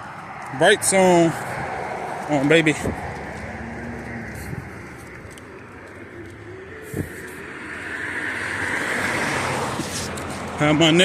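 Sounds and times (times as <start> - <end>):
car approaching: 0.0 - 11.0
street traffic noise: 0.0 - 11.0.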